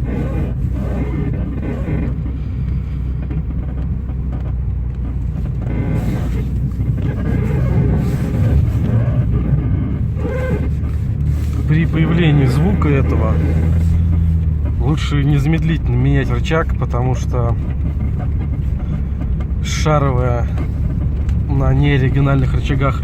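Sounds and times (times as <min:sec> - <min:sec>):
low vehicle rumble: 0:00.0 - 0:23.0
suspension arm creaking: 0:00.0 - 0:23.0.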